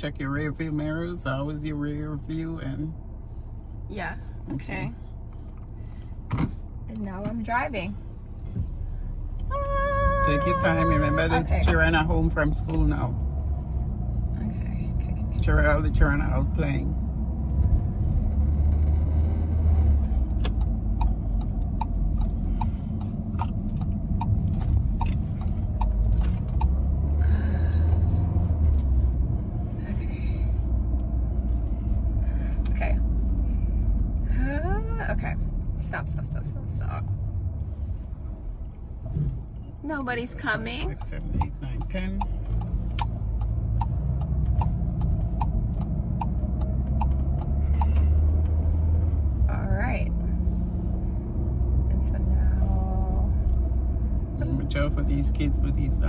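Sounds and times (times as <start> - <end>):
turn signal ticking: 0.2 - 56.0
car cabin rumble: 3.8 - 56.0
turn-signal indicator ticking: 20.2 - 27.1, 40.1 - 48.7.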